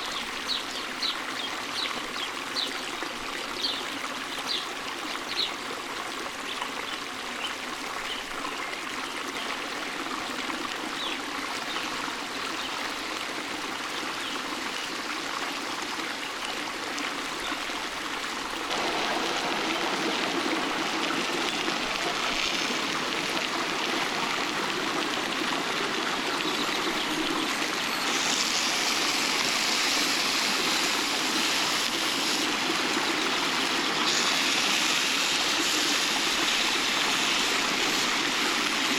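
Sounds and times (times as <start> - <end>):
stream rushing over rocks: 11.6 - 38.9.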